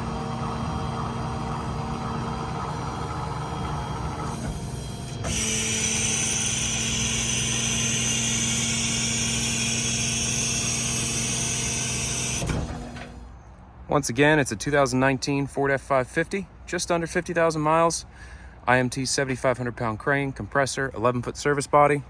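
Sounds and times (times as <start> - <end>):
machinery humming: 0.0 - 13.3.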